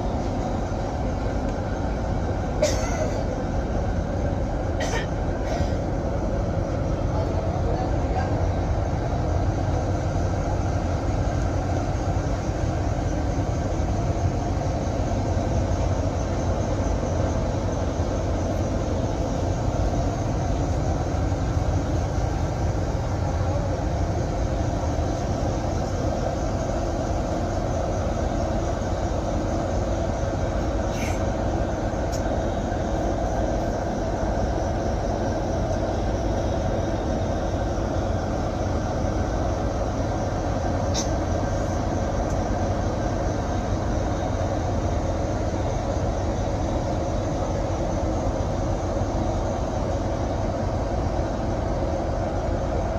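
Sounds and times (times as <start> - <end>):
bus engine and road noise: 0.0 - 52.9.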